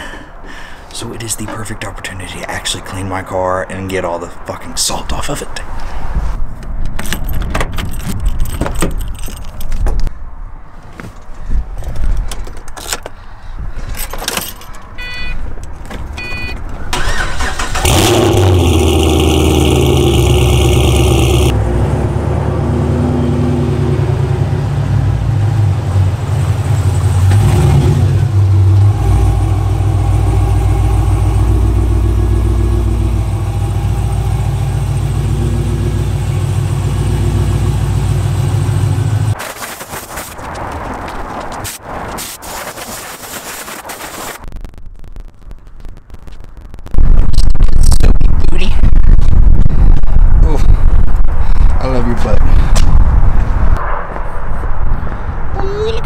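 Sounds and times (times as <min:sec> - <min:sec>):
keys jangling: 0:07.0 - 0:09.9, 0:13.9 - 0:14.9
short beeps: 0:15.0 - 0:15.4, 0:16.2 - 0:16.6
car engine starting and idling: 0:16.3 - 0:39.4
steady high tone: 0:28.5 - 0:36.5.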